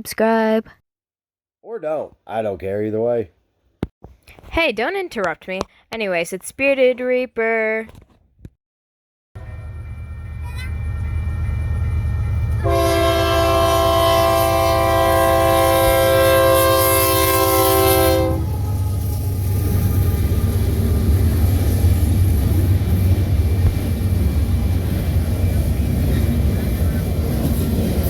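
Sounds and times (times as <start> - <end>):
train rumbling: 9.4 - 28.0
locomotive air horn: 12.6 - 20.9.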